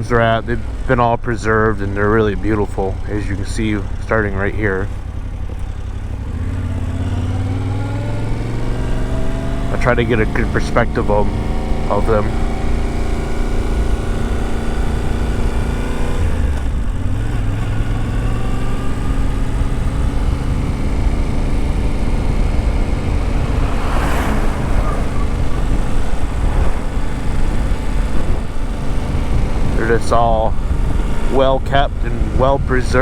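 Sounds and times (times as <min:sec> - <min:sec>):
motorcycle engine running: 0:00.0 - 0:33.0
brief hissy rush: 0:23.1 - 0:28.5.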